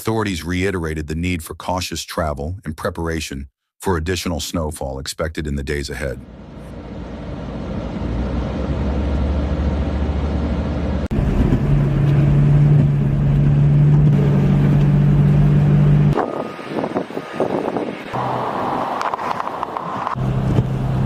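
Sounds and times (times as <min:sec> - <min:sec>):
vehicle engine rumbling: 0:05.9 - 0:21.0.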